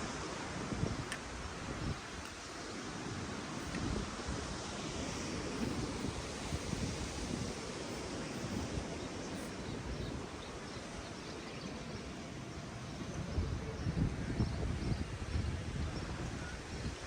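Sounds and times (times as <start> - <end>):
ocean surf: 0.0 - 14.2
wind on microphone: 0.0 - 17.0.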